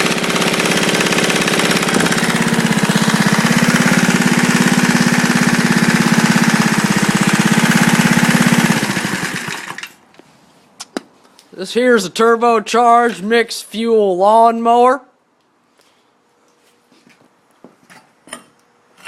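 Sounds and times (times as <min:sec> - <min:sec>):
lawnmower engine running: 0:00.0 - 0:10.2.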